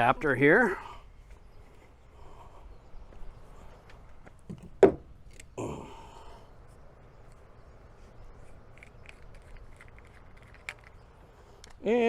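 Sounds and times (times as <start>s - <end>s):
hose fittings being handled: 8.4s - 11.0s.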